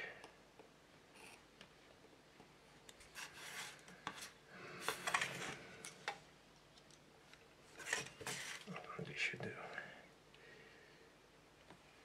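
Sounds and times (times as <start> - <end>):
knife scraping masking tape: 3.0 - 4.4.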